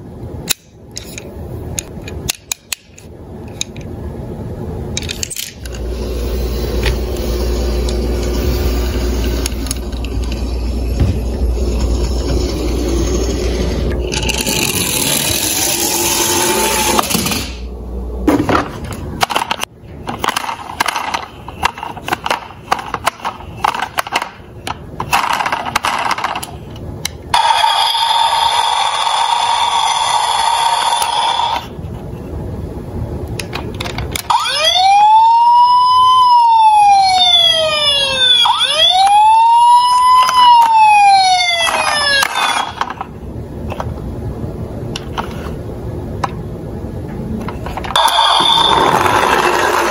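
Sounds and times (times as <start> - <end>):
toy cars rolling and clattering: 14.0 - 17.6, 19.2 - 26.7, 27.4 - 31.7, 41.6 - 43.1, 47.4 - 49.9
wailing siren: 34.3 - 42.8, 48.0 - 49.5.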